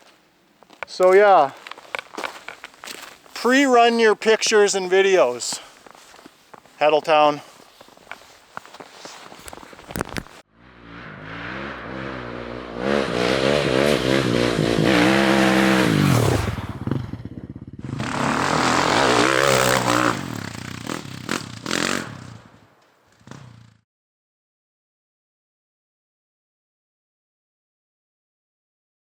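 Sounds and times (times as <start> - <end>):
dirt bike engine revving: 10.5 - 23.8.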